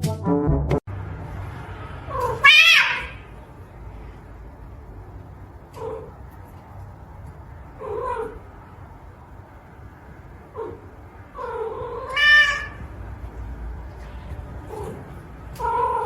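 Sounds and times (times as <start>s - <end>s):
cat meowing: 2.1s - 3.2s, 10.6s - 12.9s.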